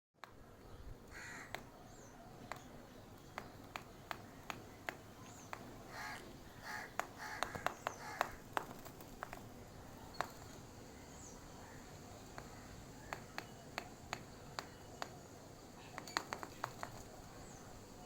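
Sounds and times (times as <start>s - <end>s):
short harsh bird calls: 1.1s - 2.2s, 5.3s - 8.4s
bird pecking taps: 2.4s - 9.4s.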